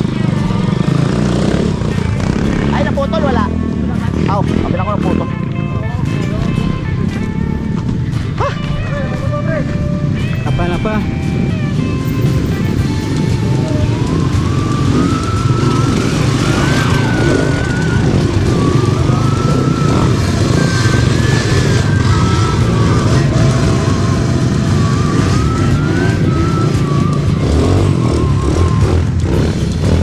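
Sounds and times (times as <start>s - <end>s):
mountain bike rolling: 0.0s - 30.0s
thin wavering whistle tone: 13.0s - 29.1s.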